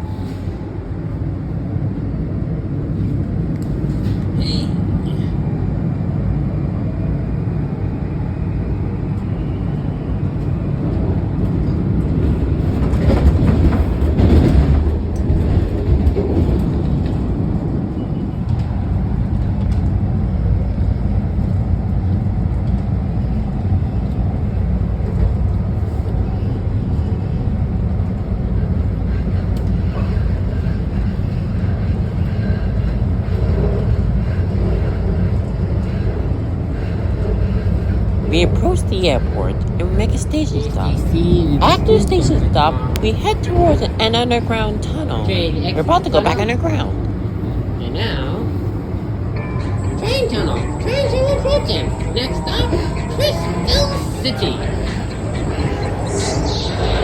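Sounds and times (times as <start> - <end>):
railcar rumbling on track: 0.0 - 57.0.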